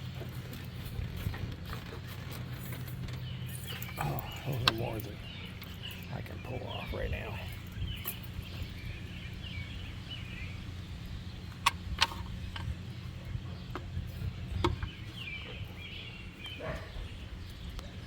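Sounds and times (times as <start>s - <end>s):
birds chirping: 0.0s - 18.0s
steady outdoor hum: 0.0s - 18.0s.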